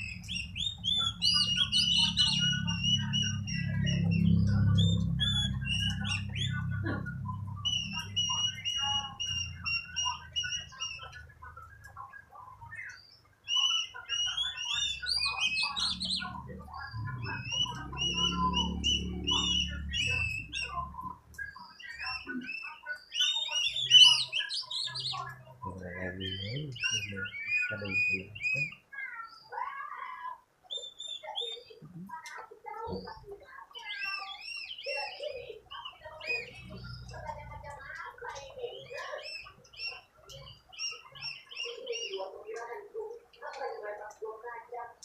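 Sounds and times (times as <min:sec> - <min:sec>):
bird singing whistled phrases: 0:00.0 - 0:29.6, 0:30.7 - 0:31.9, 0:32.9 - 0:42.2.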